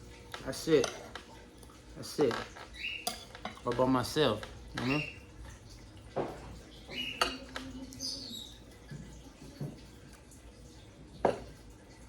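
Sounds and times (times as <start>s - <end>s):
cutlery clinking on plate: 0.7s - 1.2s, 2.3s - 5.1s, 7.0s - 7.6s.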